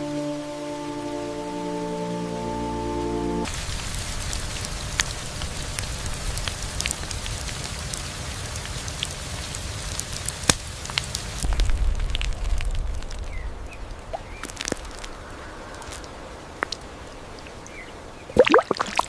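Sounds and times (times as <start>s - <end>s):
rain falling: 0.0s - 19.0s
low rumble: 11.4s - 16.6s.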